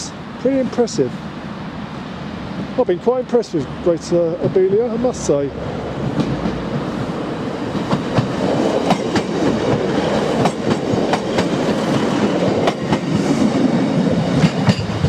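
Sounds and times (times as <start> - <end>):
train rumbling: 0.0 - 15.0
wheels clacking over rail joints: 3.4 - 15.0.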